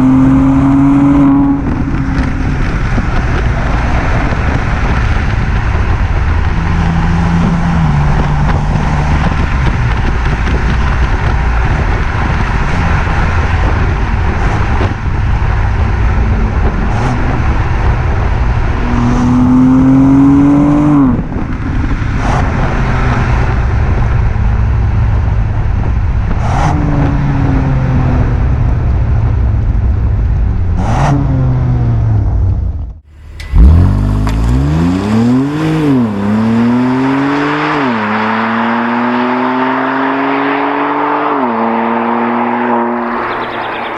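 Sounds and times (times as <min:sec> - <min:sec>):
engine revving: 0:00.0 - 0:24.2, 0:33.0 - 0:43.9
car engine running loudly: 0:00.0 - 0:39.8, 0:41.5 - 0:43.9.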